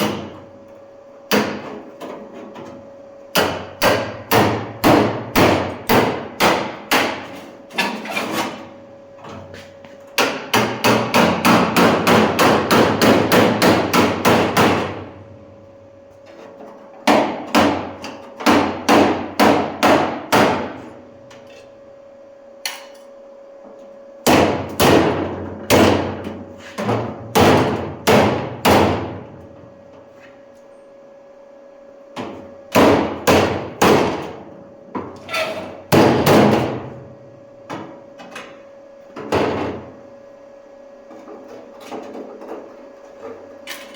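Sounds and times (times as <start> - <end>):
hammer on sheet metal: 3.3 - 7.4, 10.2 - 15.0, 17.1 - 20.8, 24.2 - 26.2, 26.8 - 29.2, 32.7 - 34.3, 35.9 - 36.9.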